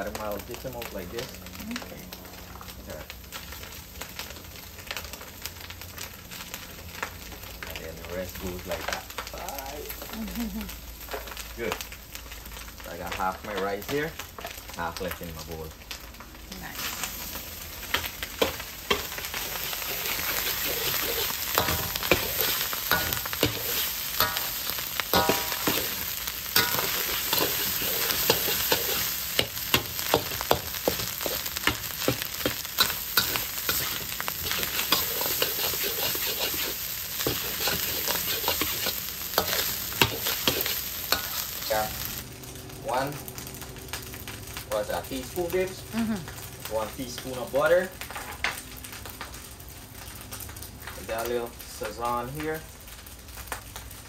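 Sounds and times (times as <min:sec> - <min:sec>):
rice sizzling in a hot pan: 0:00.0 - 0:54.0
utensil scraping a pan: 0:18.0 - 0:41.4.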